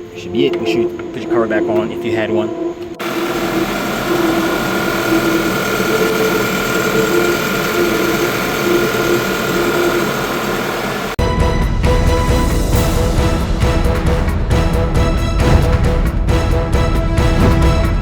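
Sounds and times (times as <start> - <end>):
thin steady belt whine: 0.0 - 11.2
car engine running: 3.0 - 11.2.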